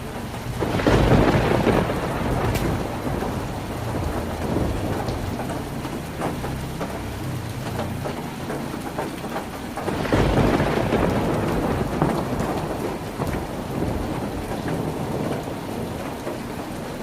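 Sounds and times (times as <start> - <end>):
low thunder rumble: 0.0 - 8.1, 9.7 - 17.0
heavy rain on a tin roof: 0.0 - 17.0.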